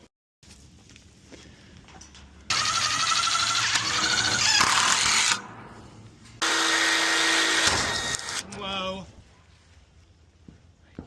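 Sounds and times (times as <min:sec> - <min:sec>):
handheld power tool running: 0:02.5 - 0:05.4, 0:06.4 - 0:08.4.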